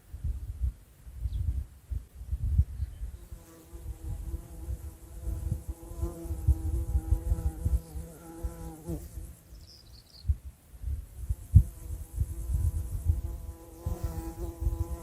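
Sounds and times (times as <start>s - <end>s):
flying insect buzzing: 3.1s - 10.0s, 11.2s - 15.0s.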